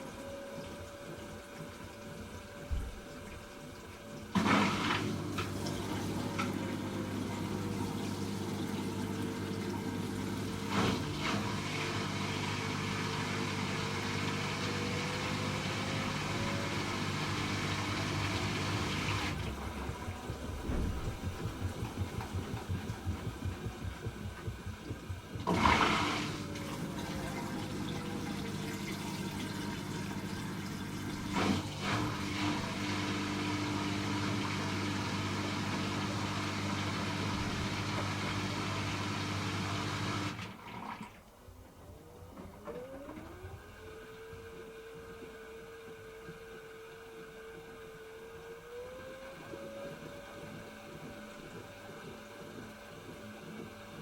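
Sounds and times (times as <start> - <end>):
washing machine motor hum: 0.0 - 54.0
water rushing into washing machine: 0.0 - 54.0
whine changing in pitch: 15.4 - 27.6
load sloshing: 18.1 - 28.6.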